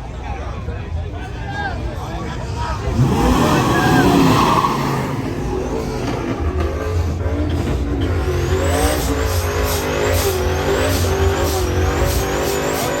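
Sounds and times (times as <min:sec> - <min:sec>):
race car engines revving: 0:00.6 - 0:13.0
high-pitched rising squeal: 0:02.8 - 0:07.0.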